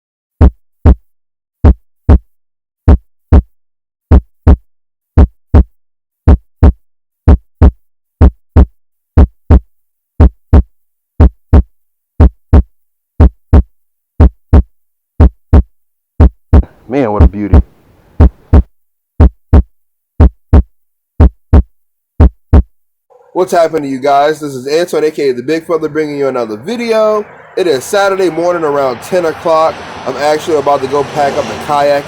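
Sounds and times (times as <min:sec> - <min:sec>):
heartbeat thumps: 0:00.4 - 0:22.8.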